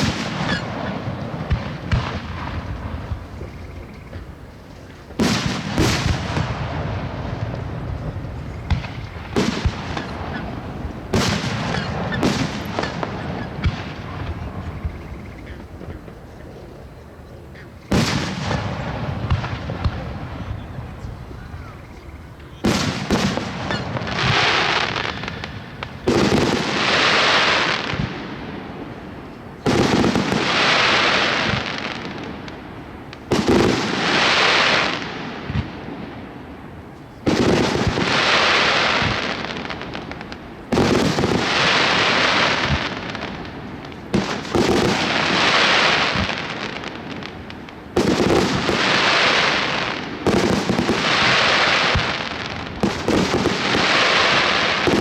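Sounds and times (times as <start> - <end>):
firework shells bursting: 0.0 - 16.9
firework crackle: 0.0 - 55.0.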